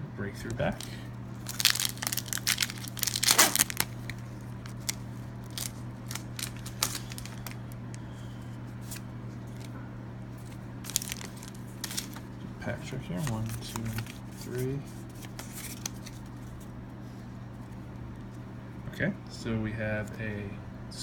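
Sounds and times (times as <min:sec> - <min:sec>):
foil wrapper tearing: 0:00.4 - 0:07.8, 0:10.4 - 0:12.3, 0:13.2 - 0:14.6, 0:15.2 - 0:16.3.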